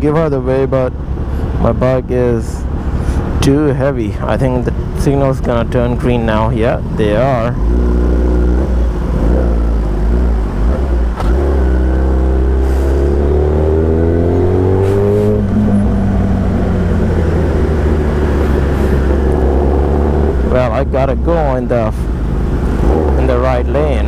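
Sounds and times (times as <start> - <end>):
motorcycle engine accelerating: 5.5 - 24.0.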